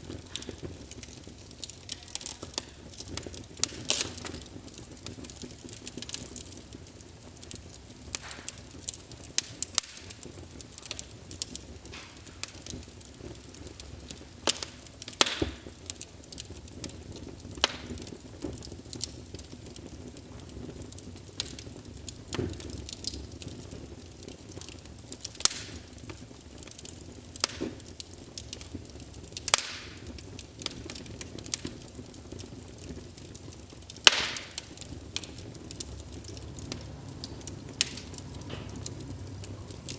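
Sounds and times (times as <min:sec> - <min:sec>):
burning logs crackling and popping: 0:00.0 - 0:39.9
rumble of flames: 0:00.0 - 0:39.9.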